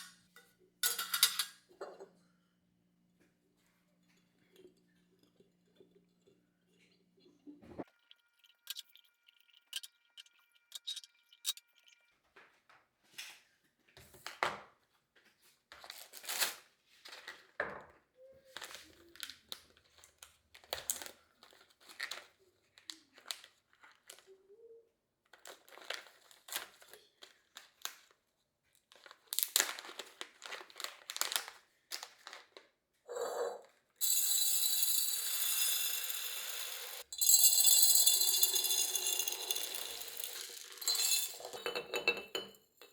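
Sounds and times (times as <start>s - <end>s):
plastic packaging crinkling: 28.9s - 32.6s.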